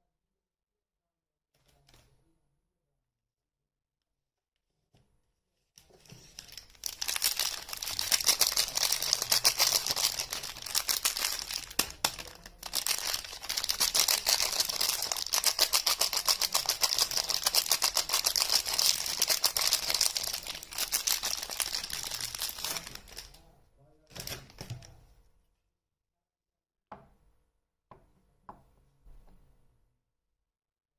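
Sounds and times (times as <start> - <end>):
wrapper crinkling and tearing: 6.1 - 23.4.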